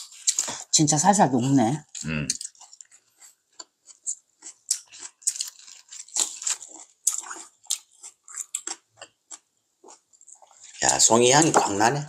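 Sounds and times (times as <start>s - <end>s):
wet chewing mouth clicks: 1.9s - 11.0s.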